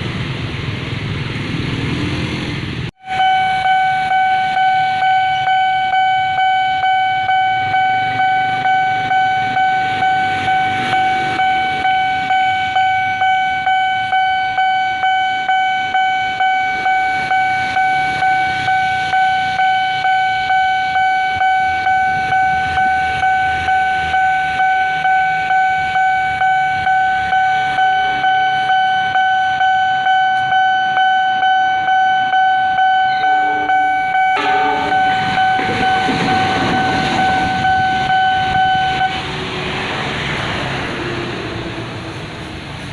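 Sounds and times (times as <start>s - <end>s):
crossing warning bell ringing: 3.0s - 40.7s
train rumbling: 15.8s - 42.9s
wheels clicking over rails: 34.9s - 38.6s.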